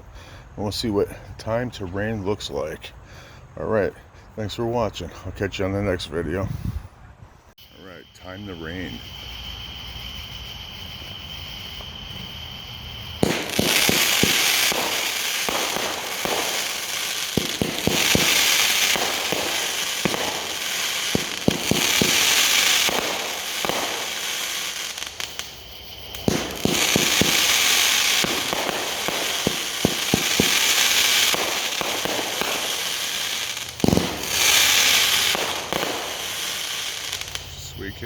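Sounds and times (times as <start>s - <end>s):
firework shots launching: 13.1s - 37.5s
crackling of bursting stars: 13.1s - 37.6s.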